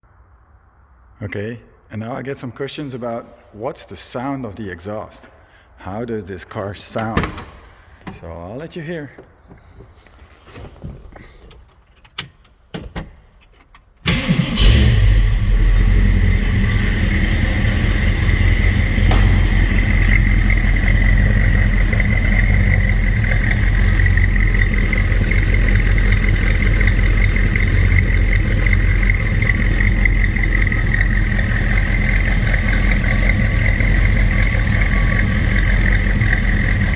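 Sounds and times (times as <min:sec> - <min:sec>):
car engine idling: 0:14.1 - 0:36.9.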